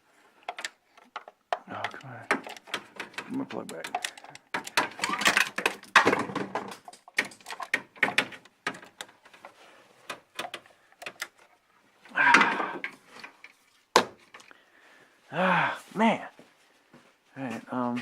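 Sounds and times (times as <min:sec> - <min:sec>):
metal tools clinking and scraping: 0:00.5 - 0:06.0.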